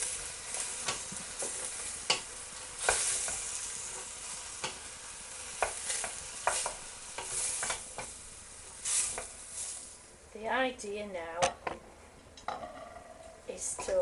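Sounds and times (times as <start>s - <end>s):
vegetables sizzling in oil: 0.0s - 10.8s
spoon scraping and knocking pan: 5.5s - 8.1s.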